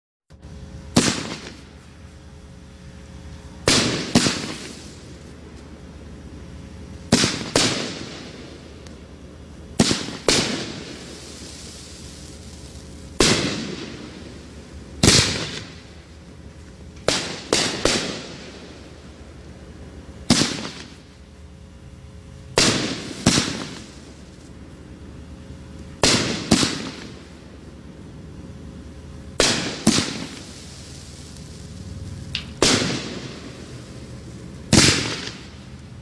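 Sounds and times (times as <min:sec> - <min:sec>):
firework bangs: 0:00.9 - 0:01.7, 0:03.6 - 0:05.2, 0:07.1 - 0:08.6, 0:09.8 - 0:15.9, 0:17.0 - 0:18.8, 0:20.2 - 0:21.1, 0:22.5 - 0:24.4, 0:26.0 - 0:27.3, 0:29.4 - 0:35.7.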